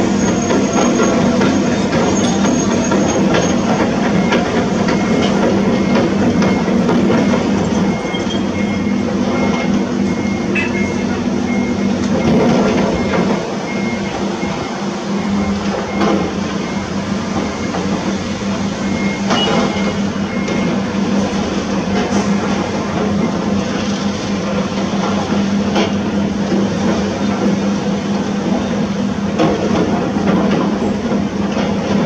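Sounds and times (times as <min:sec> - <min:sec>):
construction machinery engine hum: 0:00.0 - 0:32.0
high beeps: 0:00.1 - 0:17.8.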